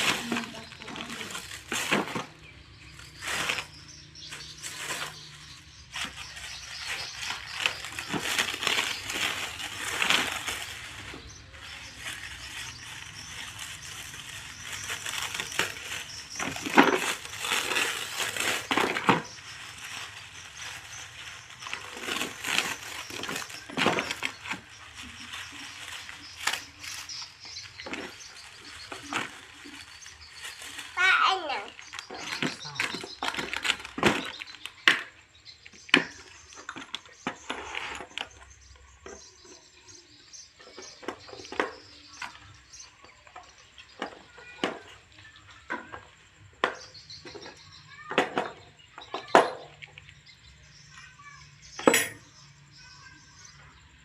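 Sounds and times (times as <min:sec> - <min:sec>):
packaging rustling and crinkling: 0:00.0 - 0:39.5.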